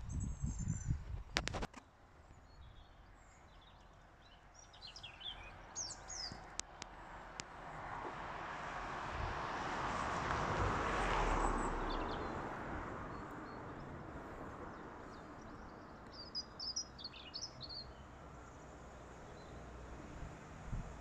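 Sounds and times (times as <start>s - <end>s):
small bird chirping: 2.4s - 6.5s, 15.2s - 18.0s.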